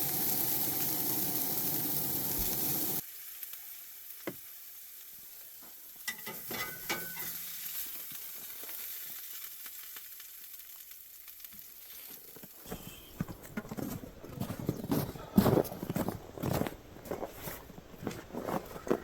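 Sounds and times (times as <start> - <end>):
burgers sizzling: 0.0 - 13.4
metal utensil clinks: 6.1 - 7.4.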